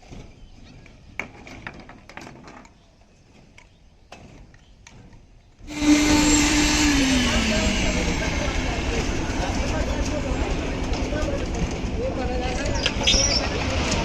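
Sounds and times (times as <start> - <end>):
engine-driven machine humming: 5.7 - 14.0.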